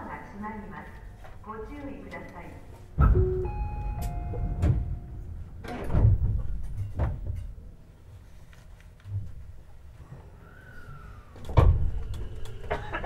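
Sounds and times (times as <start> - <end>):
train low rumble: 0.0 - 8.4
door-closing chime: 3.0 - 5.9
train doors thudding shut: 3.0 - 7.6.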